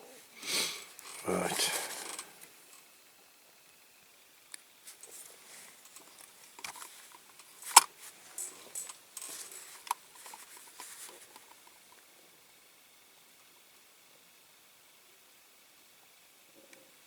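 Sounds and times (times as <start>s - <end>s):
paper crinkling: 4.9s - 11.7s.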